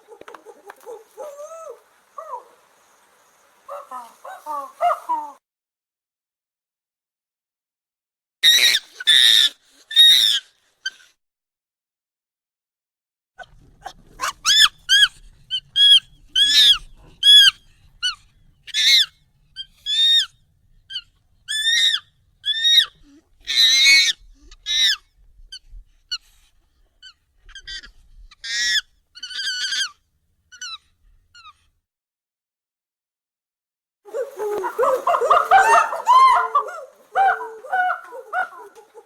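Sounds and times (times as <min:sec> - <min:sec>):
high-pitched monkey calls: 0:00.0 - 0:02.6, 0:03.7 - 0:05.4, 0:08.4 - 0:11.0, 0:13.8 - 0:20.3, 0:20.9 - 0:26.2, 0:27.0 - 0:31.6, 0:34.1 - 0:39.0.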